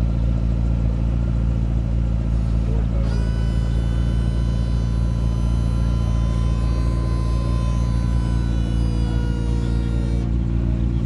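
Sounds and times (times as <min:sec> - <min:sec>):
car engine idling: 0:00.0 - 0:11.0
thin high whine: 0:03.0 - 0:10.4.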